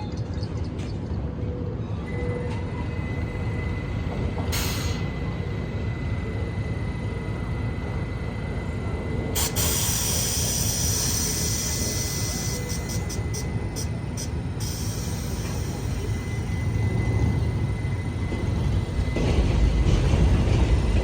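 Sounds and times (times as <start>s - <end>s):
subway train rumble: 0.0s - 21.0s
loud air-brake hiss: 4.5s - 5.1s, 9.4s - 15.8s
air hiss: 9.4s - 15.8s.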